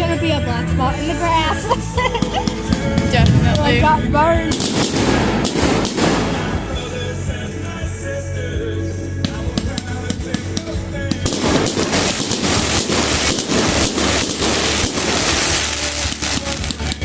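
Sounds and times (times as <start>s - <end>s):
background music: 0.0s - 17.0s
fireworks crackling and popping: 2.2s - 6.9s, 9.3s - 17.0s.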